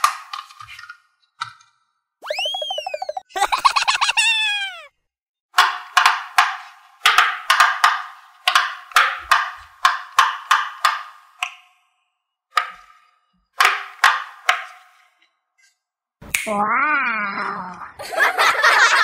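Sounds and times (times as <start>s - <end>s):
fidget toy bubbles popping: 2.2s - 3.3s.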